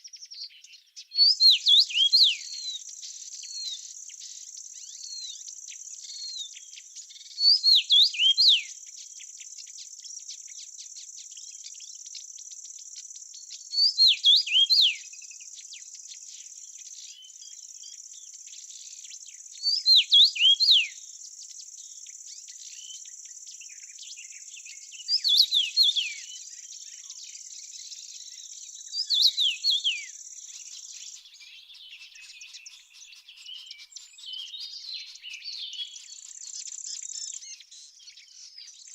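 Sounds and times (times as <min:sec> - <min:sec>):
crickets chirring: 0:14.2 - 0:31.9.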